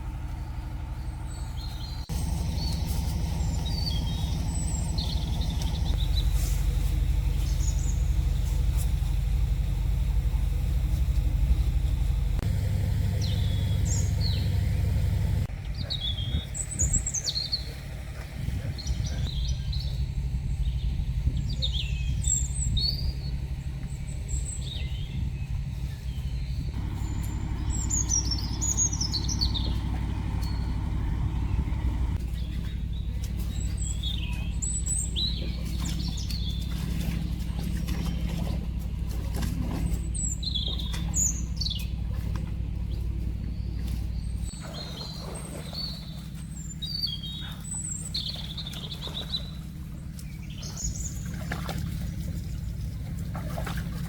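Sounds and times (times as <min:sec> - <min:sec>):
steady low rumble: 0:00.0 - 0:54.0
small birds chirping: 0:00.2 - 0:54.0.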